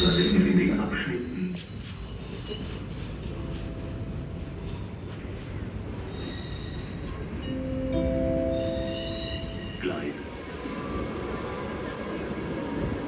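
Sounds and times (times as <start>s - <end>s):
wheels squealing: 0.0s - 4.0s, 4.6s - 7.2s
train rumbling over tracks: 0.0s - 13.0s.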